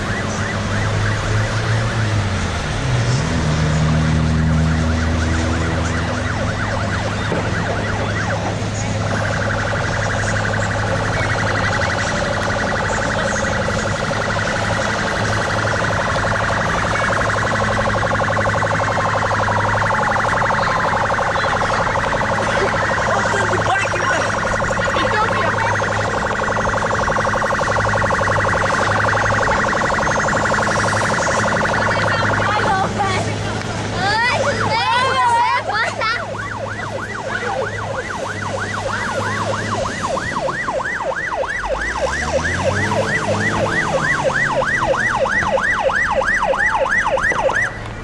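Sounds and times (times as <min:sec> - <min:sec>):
sirens wailing: 0:00.0 - 0:48.0.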